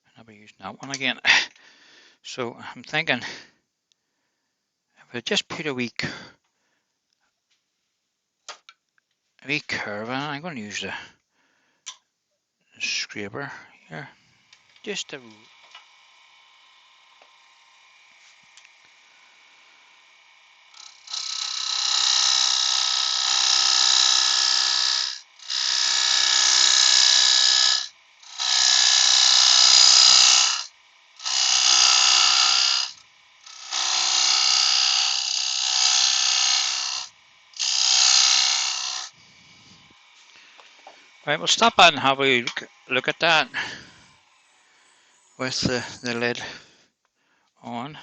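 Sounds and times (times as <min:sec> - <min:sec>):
faint lathe whine: 0:11.8 - 0:47.6
scraper cutting wood on lathe: 0:14.4 - 0:46.4.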